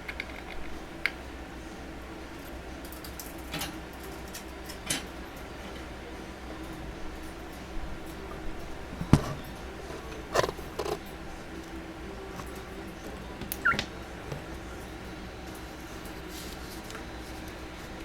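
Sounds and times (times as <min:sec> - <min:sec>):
bird rising chirp: 0:13.5 - 0:14.2.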